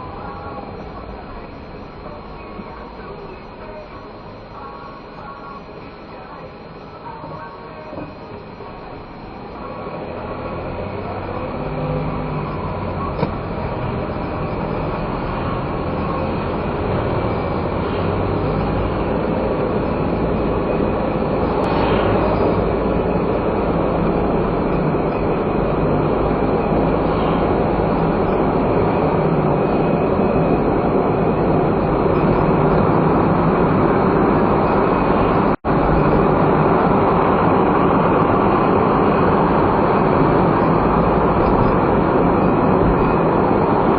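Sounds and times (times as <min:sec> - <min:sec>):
car engine and tyre rumble: 0:00.0 - 0:43.9.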